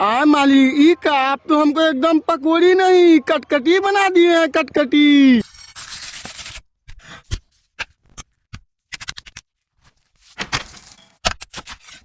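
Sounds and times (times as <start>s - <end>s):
kitchen utensils scraping and clicking: 10.8s - 12.0s.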